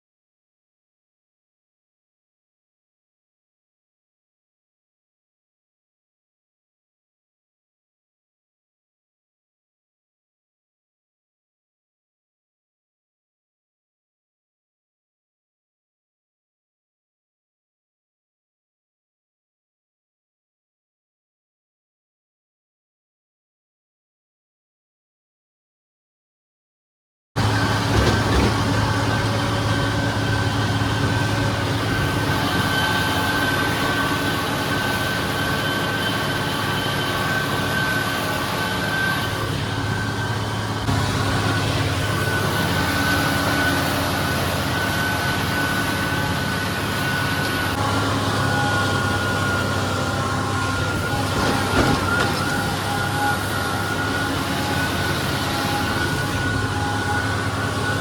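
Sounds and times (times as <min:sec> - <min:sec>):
tractor engine running under load: 0:27.4 - 0:58.0.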